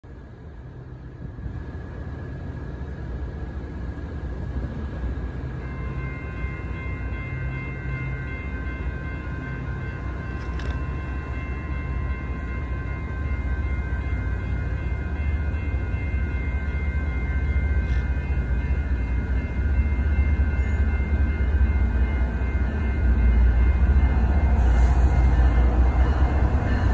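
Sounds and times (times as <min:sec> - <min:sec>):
diesel locomotive rumble: 0:00.0 - 0:26.9.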